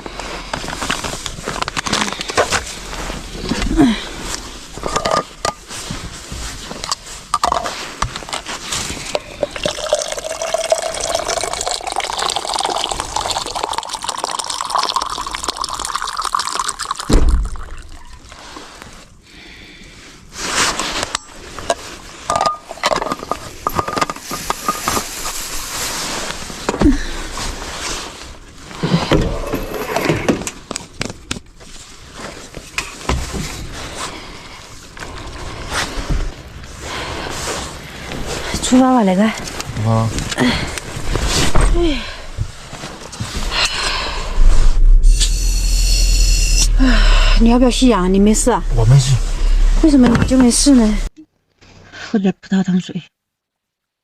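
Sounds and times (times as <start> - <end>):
water pouring into container: 9.2 - 18.4
knocks and clatter of handling: 21.6 - 25.2.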